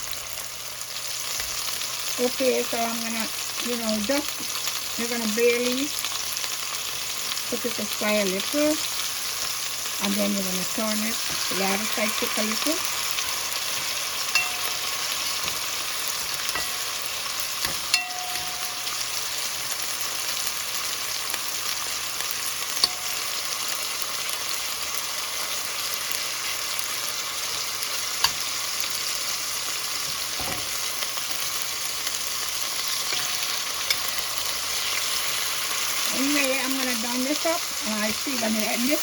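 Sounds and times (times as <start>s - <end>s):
chicken sizzling in hot oil: 0.0s - 39.0s
utensil clicking against pan: 22.8s - 23.2s.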